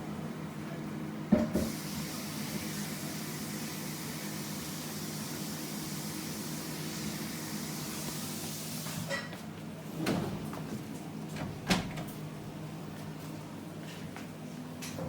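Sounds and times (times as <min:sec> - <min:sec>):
dishwasher drawer knocks and clunks: 0:11.4 - 0:12.1.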